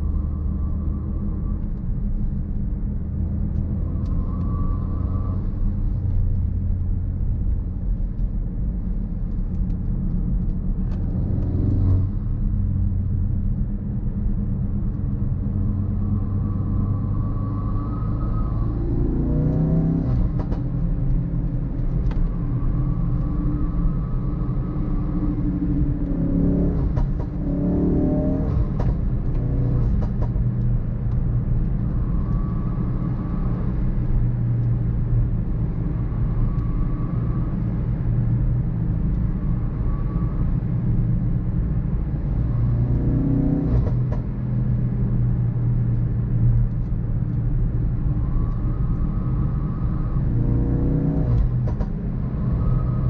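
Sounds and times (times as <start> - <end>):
tyre and road noise: 0.0 - 53.0
car engine revving through gears: 18.6 - 20.6, 26.0 - 30.4, 42.6 - 44.3, 50.2 - 53.0.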